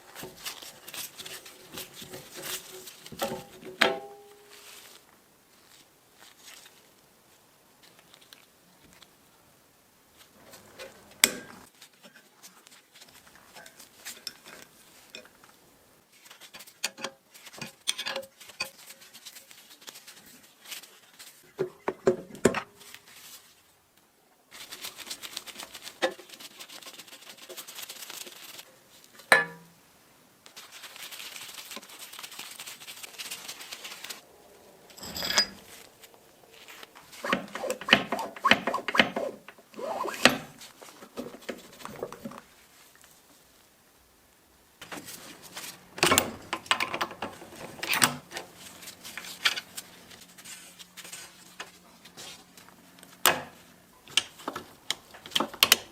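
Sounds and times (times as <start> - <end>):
metal parts clinking and scraping: 34.9 - 35.9.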